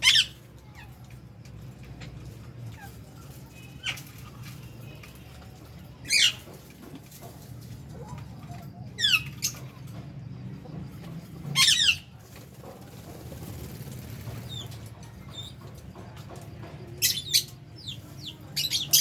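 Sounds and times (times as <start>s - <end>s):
lovebirds shrill squeaky calls: 0.0s - 0.4s, 3.6s - 4.4s, 6.0s - 6.4s, 11.5s - 12.1s, 18.6s - 19.0s.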